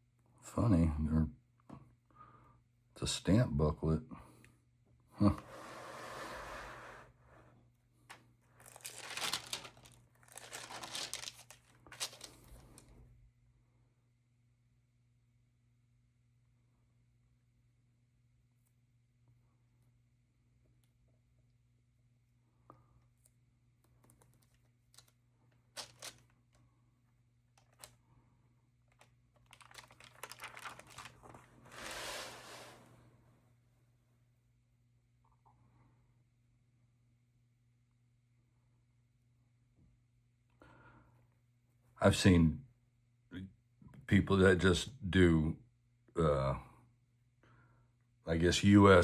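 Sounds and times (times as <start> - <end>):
album pages and plastic sleeves handled: 8.1 - 12.9, 23.8 - 26.6, 27.5 - 28.0, 28.8 - 32.8
paper crinkling and rustling: 8.5 - 12.9, 24.0 - 26.4, 27.6 - 28.0, 28.9 - 32.8.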